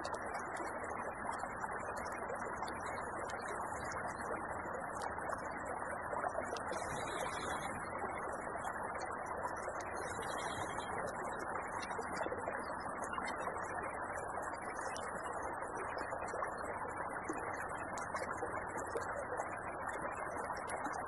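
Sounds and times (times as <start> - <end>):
faint ticks: 0.0 - 21.0
small creek flowing: 9.9 - 11.0.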